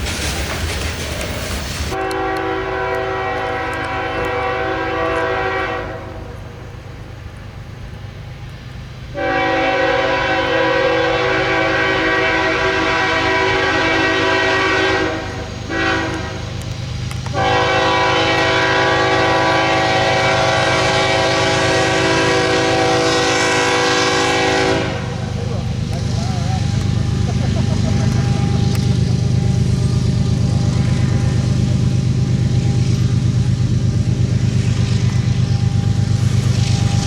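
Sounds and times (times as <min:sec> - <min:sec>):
low rumble of passing train: 0:00.0 - 0:37.0
locomotive air horn: 0:01.9 - 0:06.8, 0:09.1 - 0:33.7.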